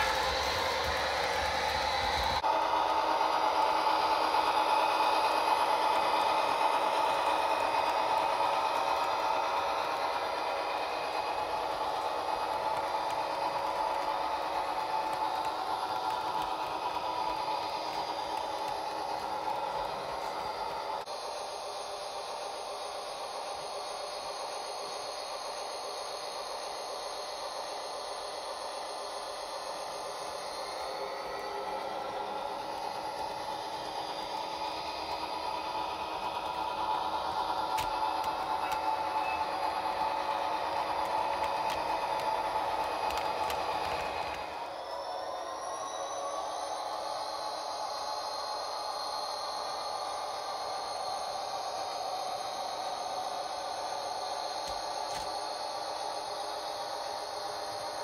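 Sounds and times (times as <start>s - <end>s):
model train motor whir: 0.0s - 58.0s.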